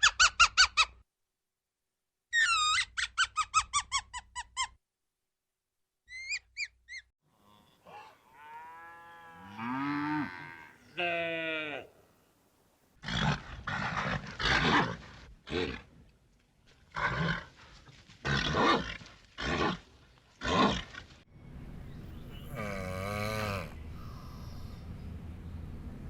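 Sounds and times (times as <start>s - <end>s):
large animal roaring calls: 22.4s - 24.8s.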